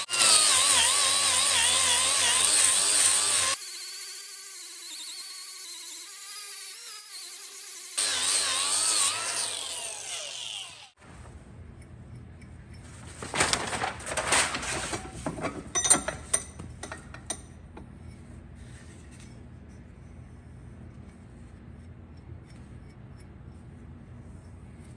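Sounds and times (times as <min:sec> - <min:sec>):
angle grinder sanding metal: 0:00.0 - 0:11.0.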